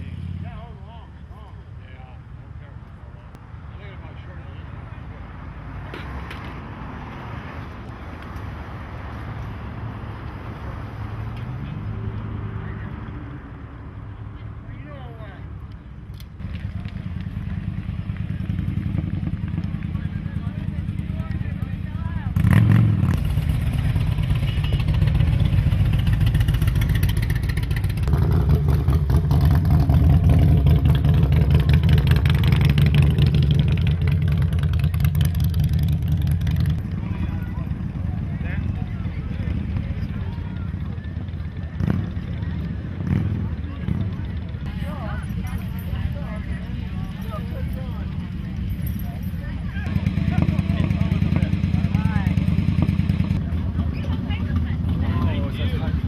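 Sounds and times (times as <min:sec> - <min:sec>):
crowd noise: 0:16.4 - 0:56.0
motorcycle engine running: 0:16.4 - 0:56.0.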